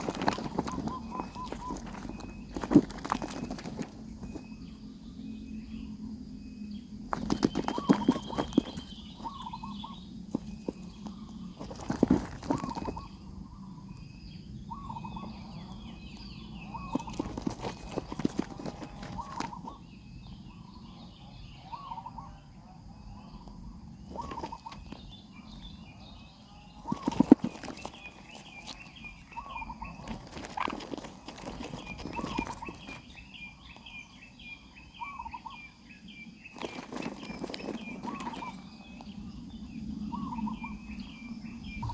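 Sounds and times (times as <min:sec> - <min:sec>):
knocks and scuffling: 0:00.0 - 0:04.7, 0:07.1 - 0:13.2, 0:16.0 - 0:19.8, 0:26.8 - 0:33.9, 0:36.5 - 0:39.1
birds chirping wavy calls: 0:00.0 - 0:41.9.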